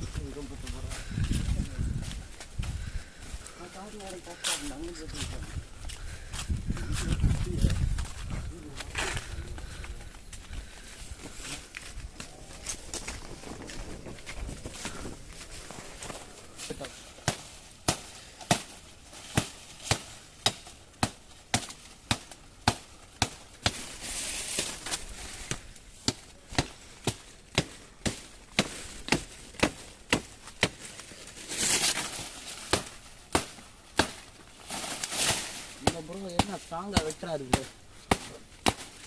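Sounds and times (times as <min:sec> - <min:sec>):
wood being chopped: 0:17.2 - 0:23.9, 0:25.4 - 0:31.0, 0:32.6 - 0:34.3, 0:35.1 - 0:39.0.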